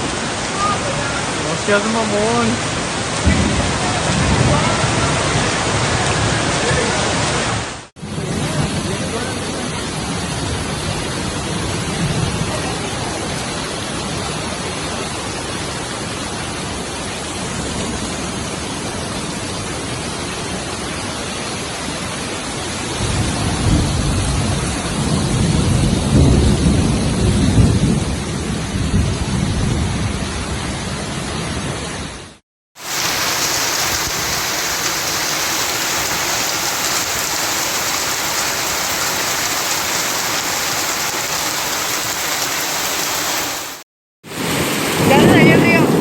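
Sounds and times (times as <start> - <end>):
heavy rain pouring: 0.0 - 32.0, 32.8 - 46.0
low rumble of thunder: 3.2 - 6.8, 23.0 - 30.8.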